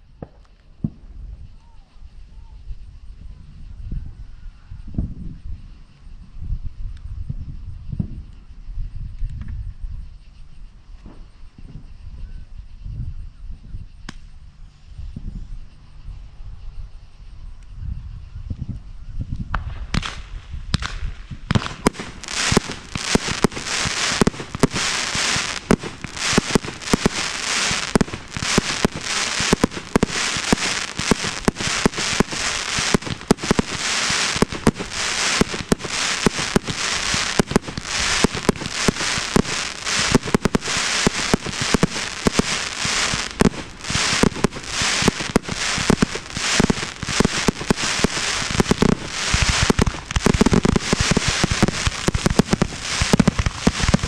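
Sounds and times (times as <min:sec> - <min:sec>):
fireworks bangs and crackles: 0:00.0 - 0:03.7, 0:18.7 - 0:54.0.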